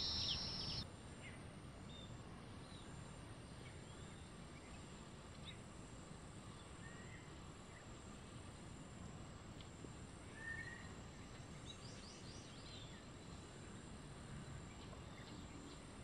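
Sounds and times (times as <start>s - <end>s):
small birds chirping: 0.0s - 0.8s
steady outdoor hiss: 0.0s - 16.0s.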